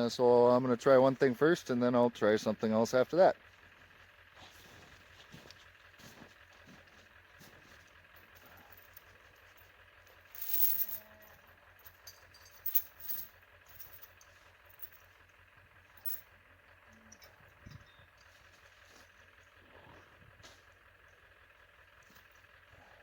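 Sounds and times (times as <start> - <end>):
gear rattling: 8.0 - 15.2, 15.9 - 16.4
metallic clinks: 10.2 - 15.1, 16.0 - 16.3.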